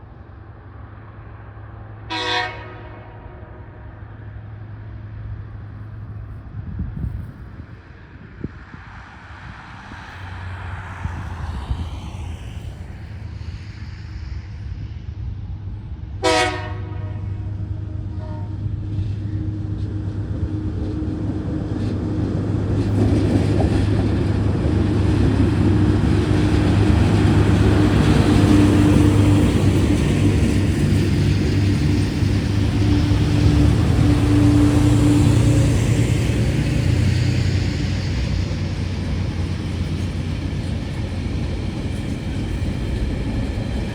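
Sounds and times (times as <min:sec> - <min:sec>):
diesel locomotive engines droning: 0:00.0 - 0:43.9
train horn toot: 0:02.1 - 0:03.8, 0:16.2 - 0:18.8.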